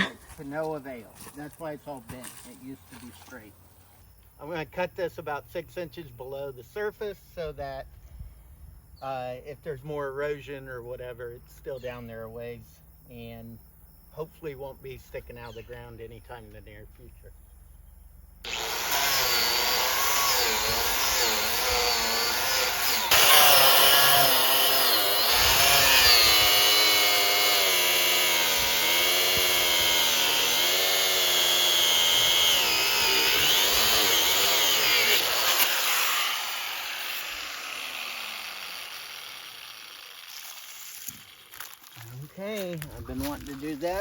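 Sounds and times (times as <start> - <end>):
angle grinder cutting steel: 18.4 - 42.0.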